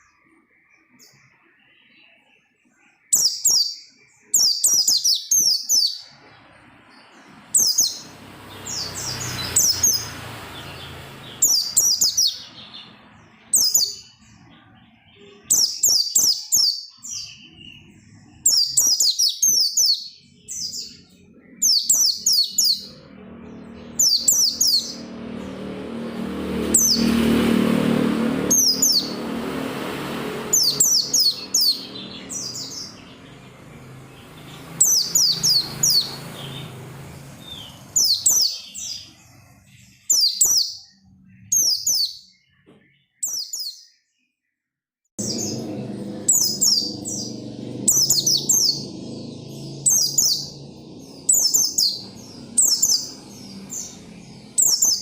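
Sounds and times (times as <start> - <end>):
bird chirping rapidly: 3.0 - 42.4, 43.0 - 43.9, 45.2 - 55.0
low background rumble: 45.2 - 55.0.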